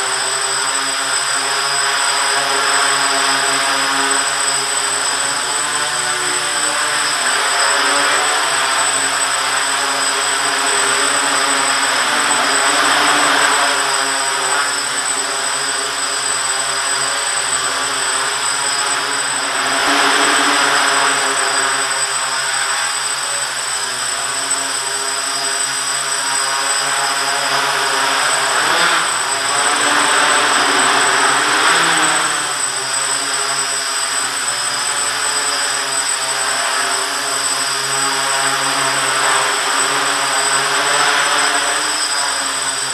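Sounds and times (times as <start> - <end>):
quadcopter propellers whirring: 0.0 - 42.9.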